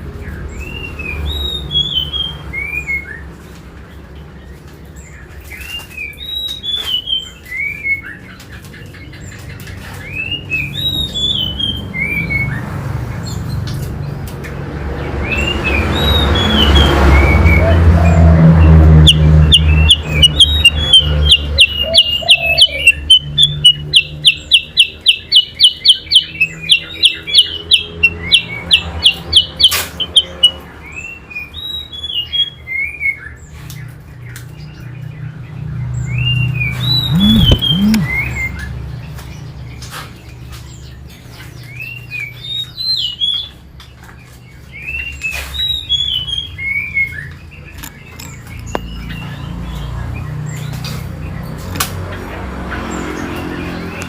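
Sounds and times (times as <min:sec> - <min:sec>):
bird rapid sharp notes: 0:36.7 - 0:38.3
bird whistled notes sliding down: 0:36.8 - 0:38.2
low hum: 0:37.0 - 0:38.2.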